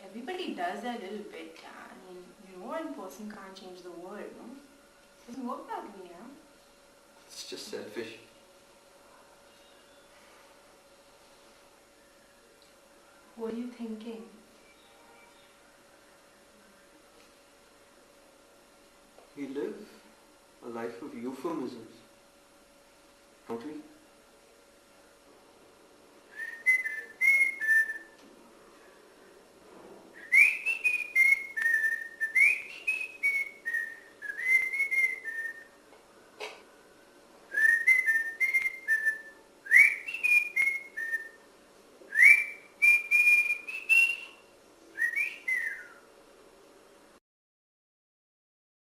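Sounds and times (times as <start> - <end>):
person whistling a tune: 26.4 - 28.1, 30.2 - 35.6, 37.6 - 41.3, 42.1 - 44.4.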